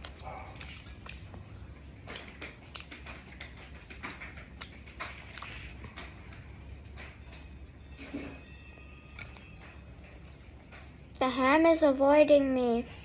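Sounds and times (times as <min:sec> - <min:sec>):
person chewing: 0:00.0 - 0:07.5, 0:09.1 - 0:11.0.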